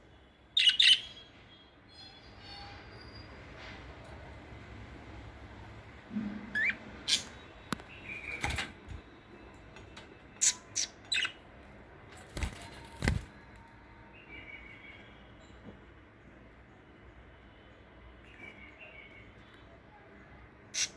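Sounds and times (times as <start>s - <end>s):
budgerigar chirping: 10.4s - 11.4s.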